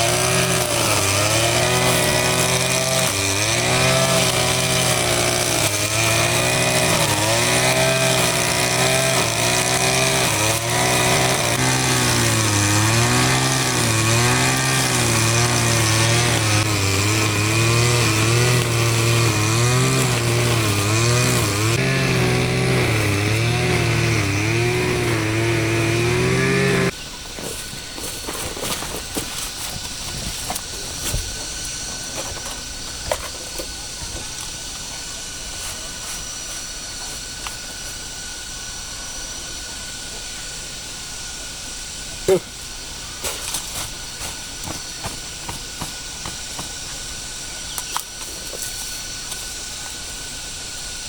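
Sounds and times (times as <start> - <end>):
small petrol engine running: 0.0 - 27.0.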